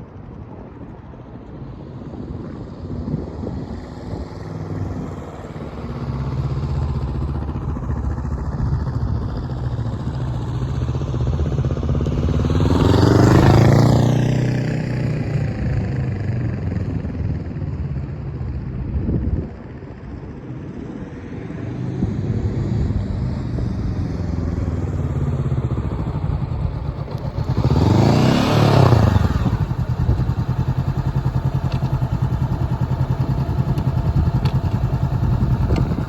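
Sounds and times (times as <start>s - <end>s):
motorcycle engine running: 23.3s - 36.0s.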